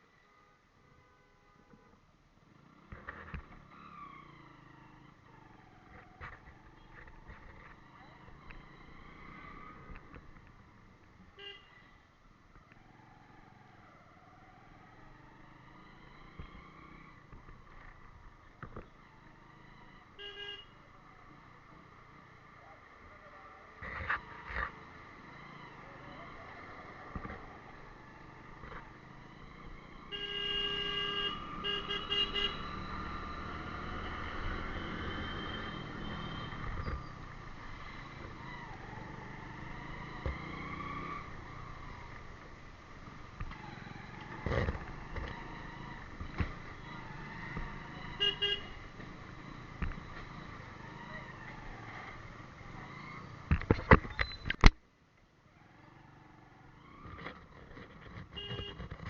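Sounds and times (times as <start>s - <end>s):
road traffic: 0.0s - 59.0s
vehicle horn honking: 20.2s - 20.8s, 30.0s - 32.8s, 48.2s - 48.8s, 58.4s - 58.8s
engine sound rising in pitch: 32.6s - 36.6s.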